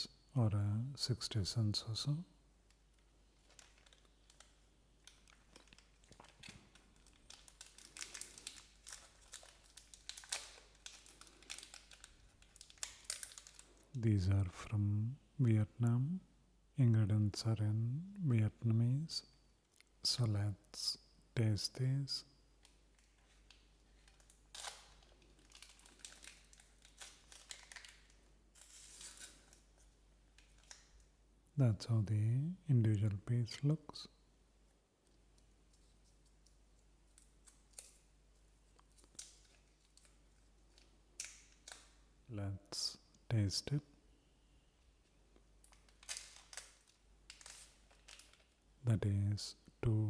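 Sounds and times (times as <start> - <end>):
wrapper crinkling: 2.7 - 14.0, 22.6 - 31.1, 35.3 - 42.1, 45.6 - 48.7.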